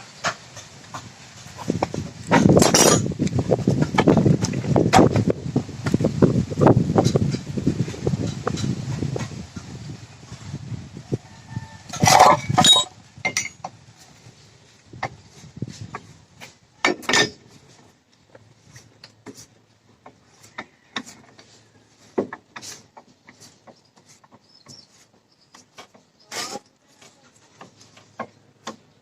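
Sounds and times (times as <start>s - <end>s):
clinks and knocks: 1.8s - 5.1s, 11.9s - 13.7s, 16.8s - 17.6s.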